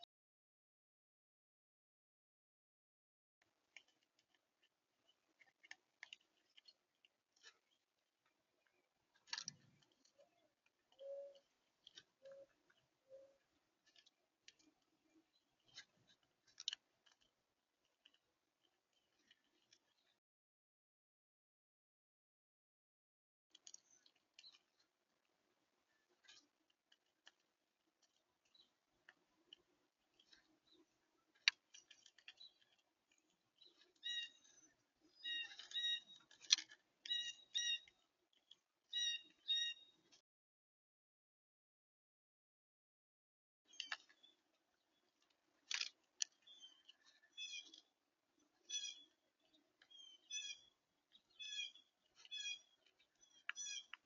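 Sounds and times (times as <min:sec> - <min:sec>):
birds clicking and tapping: 0:03.4 - 0:20.2, 0:23.5 - 0:40.2, 0:43.7 - 0:54.0
low bird calls: 0:08.6 - 0:14.0, 0:33.6 - 0:38.0, 0:38.9 - 0:40.0, 0:46.3 - 0:54.0.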